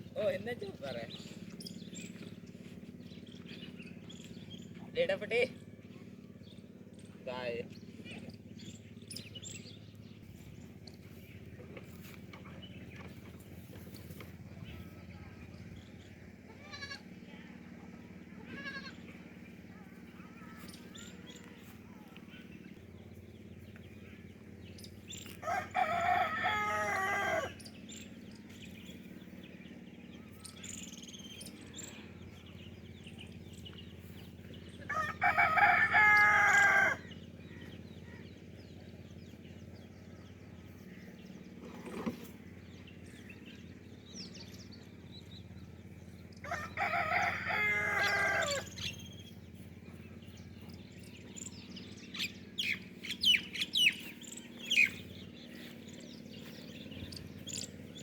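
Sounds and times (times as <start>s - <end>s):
rooster crowing: 25.4s - 27.6s, 34.8s - 37.1s, 46.4s - 48.9s.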